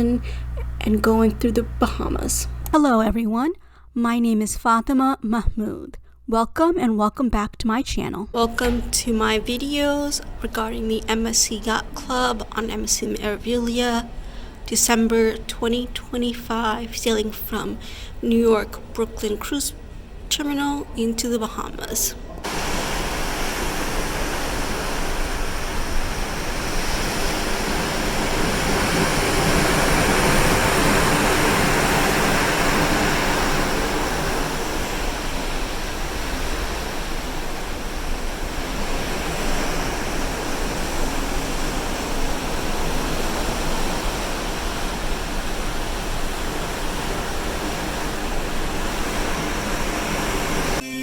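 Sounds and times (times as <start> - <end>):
sea water rushing along ship: 22.4 - 50.8.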